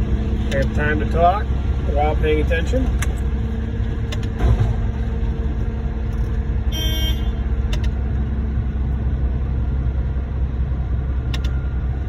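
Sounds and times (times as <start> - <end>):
diesel engine running: 0.0 - 12.0
short horn toot: 6.7 - 7.4.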